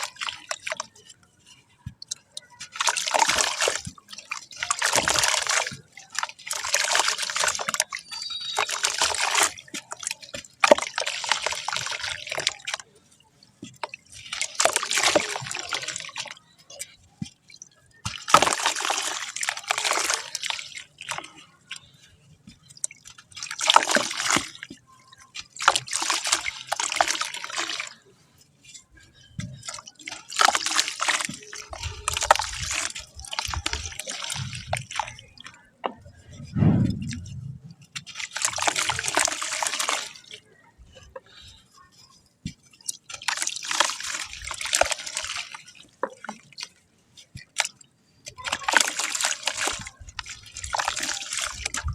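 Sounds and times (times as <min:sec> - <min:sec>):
wet sand splashing in water: 0:00.0 - 0:01.1, 0:02.0 - 0:12.9, 0:13.7 - 0:16.8, 0:18.0 - 0:28.0, 0:29.1 - 0:35.6, 0:36.2 - 0:40.4, 0:42.8 - 0:46.7, 0:47.3 - 0:51.9
low thud: 0:36.4 - 0:37.8.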